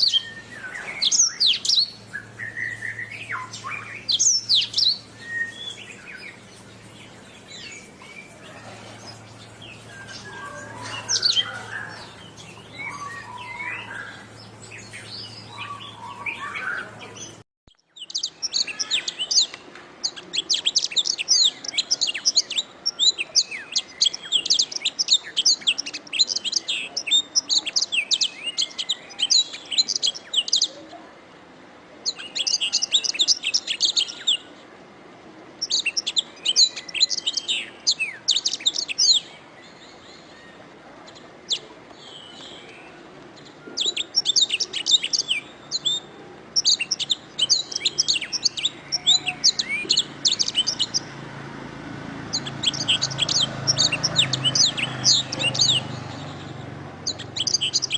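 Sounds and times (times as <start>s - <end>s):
low steady hum: 0.0s - 17.4s
canary singing: 0.0s - 30.8s, 32.0s - 34.5s, 35.6s - 57.9s.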